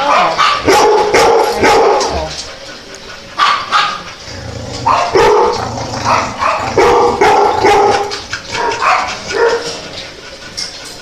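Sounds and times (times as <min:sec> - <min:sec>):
dog barking: 0:00.0 - 0:02.2, 0:03.4 - 0:04.0, 0:04.9 - 0:09.8.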